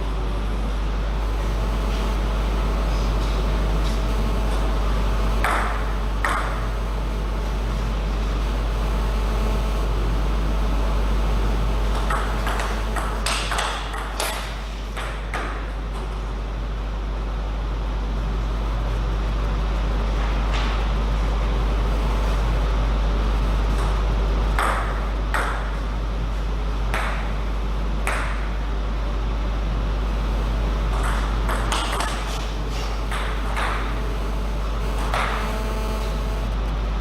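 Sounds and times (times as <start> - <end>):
low hum: 0.0 - 15.0, 21.0 - 37.0
table tennis ball hits: 5.4 - 6.6, 11.9 - 16.1, 24.6 - 25.8, 26.9 - 27.3, 28.0 - 28.5, 30.9 - 32.2, 33.1 - 33.9.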